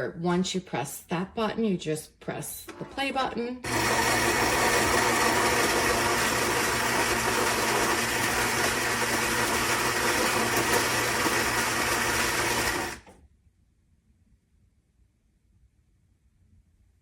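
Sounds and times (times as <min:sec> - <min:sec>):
coffee grinder whirring: 0:03.6 - 0:13.2.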